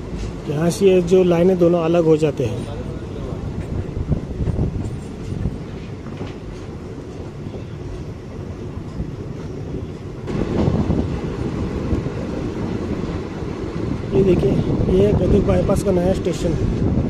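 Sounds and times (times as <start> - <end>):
train wheels rumbling and clattering: 0.0 - 17.0.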